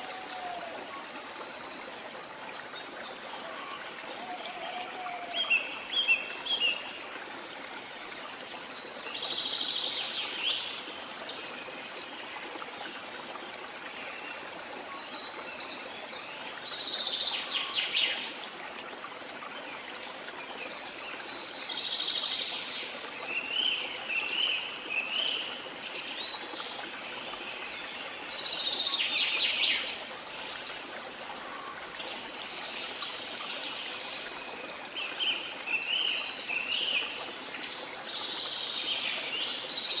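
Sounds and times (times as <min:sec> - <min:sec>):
waterfall rushing: 0:00.0 - 0:01.1.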